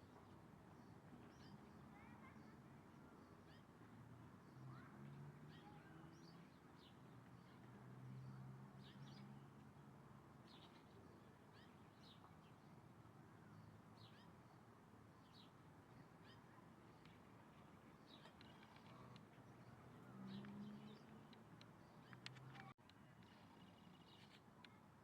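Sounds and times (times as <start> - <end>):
small birds chirping: 4.4 - 9.5, 10.4 - 24.8.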